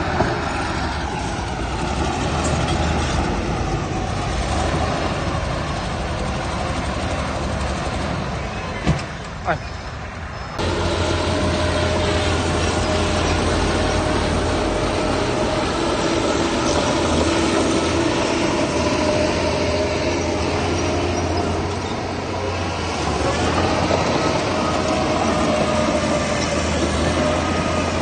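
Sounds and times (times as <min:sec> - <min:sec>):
heavy diesel machinery running: 0:00.0 - 0:09.7, 0:10.6 - 0:28.0
steady machine whine: 0:10.6 - 0:28.0.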